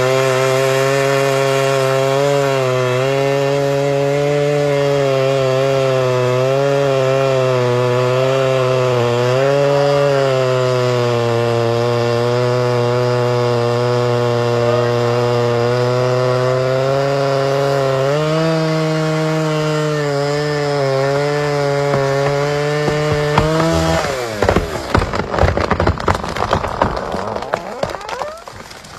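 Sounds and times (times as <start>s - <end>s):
tree cracking and crashing down: 0.0s - 12.3s, 20.3s - 28.9s
chainsaw cutting wood: 0.0s - 28.9s.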